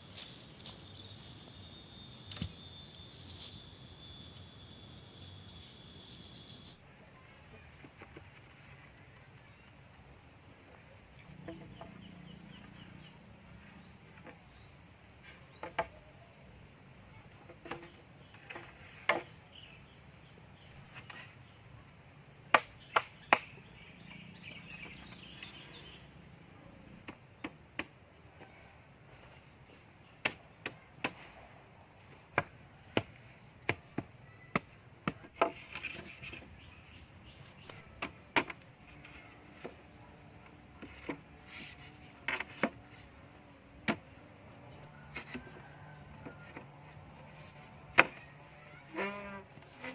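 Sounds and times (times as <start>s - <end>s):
faint high chirping: 0.1s - 7.6s.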